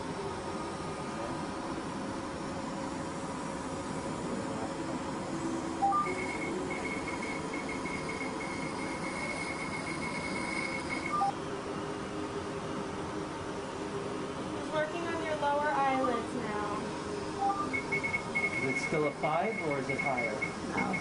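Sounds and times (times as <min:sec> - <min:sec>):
rapid high laser beeps: 0:05.8 - 0:11.3, 0:17.4 - 0:21.0.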